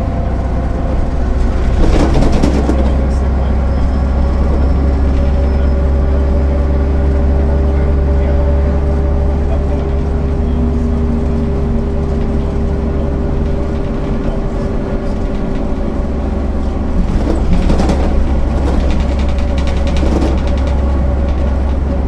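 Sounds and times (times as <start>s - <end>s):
bus diesel engine humming: 0.0s - 22.0s
rapid rattling clicks: 16.5s - 22.0s.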